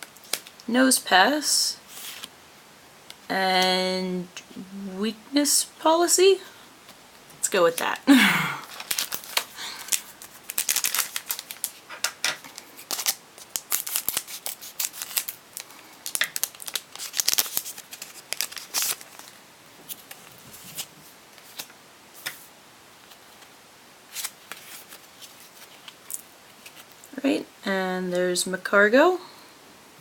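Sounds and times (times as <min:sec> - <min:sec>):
foil wrapper and cards crinkling: 0:08.6 - 0:21.7, 0:24.1 - 0:27.1.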